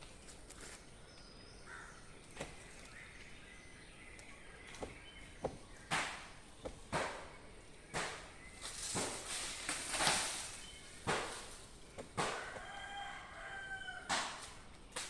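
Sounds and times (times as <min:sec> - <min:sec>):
sharp knocks: 0:04.8 - 0:07.3, 0:07.9 - 0:08.3
rooster crowing: 0:12.2 - 0:14.4.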